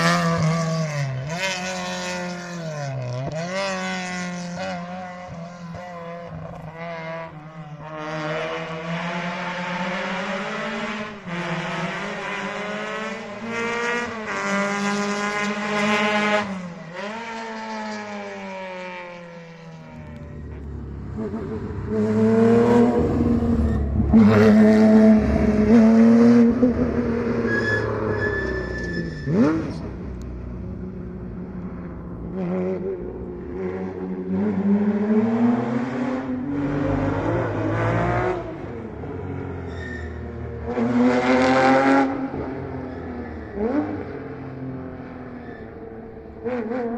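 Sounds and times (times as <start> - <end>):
rally car engine at full throttle: 0.0 - 46.9.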